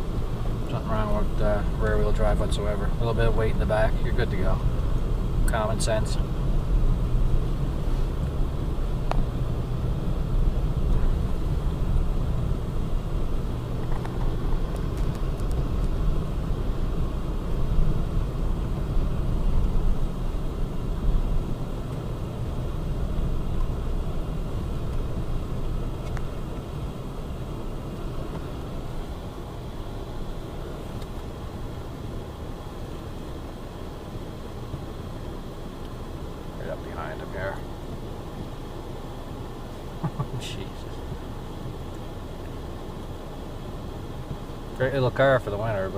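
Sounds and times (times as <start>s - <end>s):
tyres on snowy road: 0.0s - 45.9s
vehicle engine rumble: 0.0s - 45.9s.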